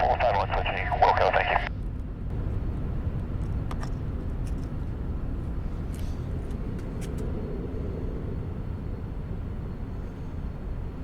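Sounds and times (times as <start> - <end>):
jet taking off: 0.0 - 1.7, 5.3 - 11.0.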